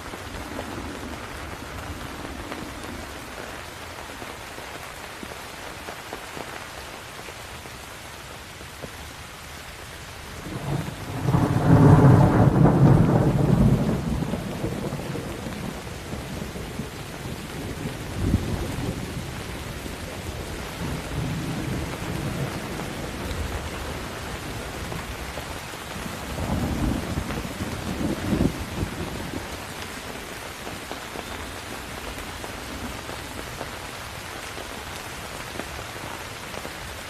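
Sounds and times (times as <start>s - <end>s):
rain: 0.0s - 37.0s
thunder rumbling: 10.4s - 33.6s.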